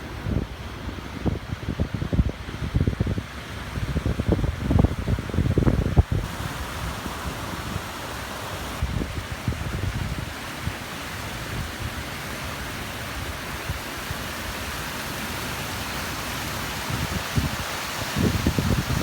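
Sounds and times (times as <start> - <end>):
wind buffeting the microphone: 0.0 - 12.2, 16.7 - 19.0
waterfall rushing: 6.2 - 19.0.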